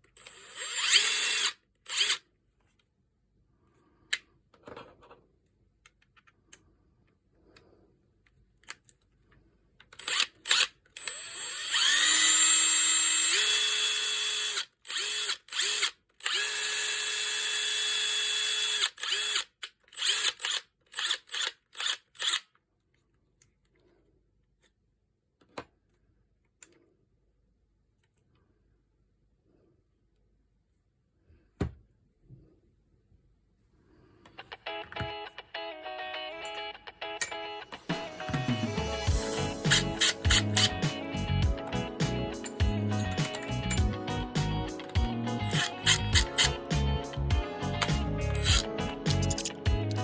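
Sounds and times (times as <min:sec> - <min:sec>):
impact driver motor whine: 0:00.2 - 0:02.2, 0:10.0 - 0:19.4, 0:39.2 - 0:40.8, 0:48.4 - 0:48.6.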